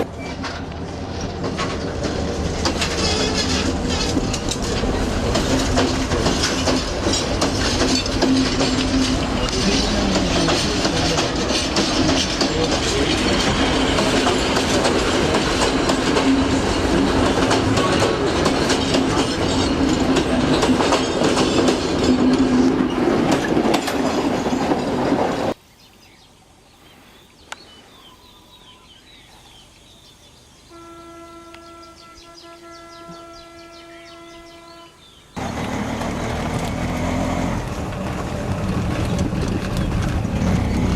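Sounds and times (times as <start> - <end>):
train rattling and rumbling on rails: 0.0 - 25.6, 31.6 - 40.9.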